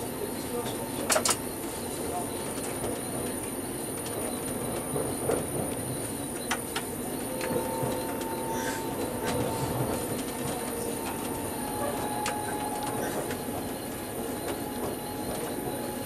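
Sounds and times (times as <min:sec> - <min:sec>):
train rumble: 0:00.0 - 0:16.0
high wheel squeal: 0:07.1 - 0:10.1.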